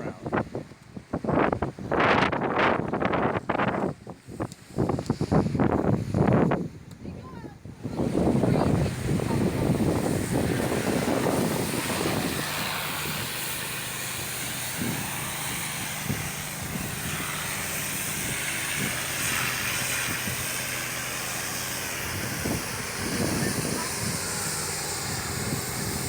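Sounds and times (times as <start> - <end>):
low mechanical hum: 0.0 - 26.0
constant hiss: 7.7 - 26.0.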